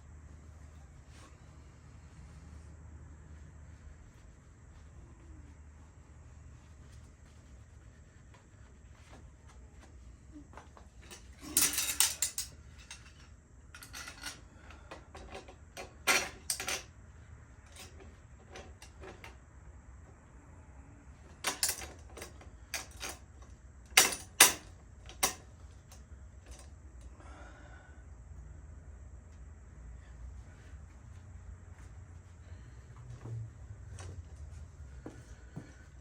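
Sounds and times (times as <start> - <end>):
metal bicycle parts clinking: 10.9 - 16.9, 21.4 - 26.7.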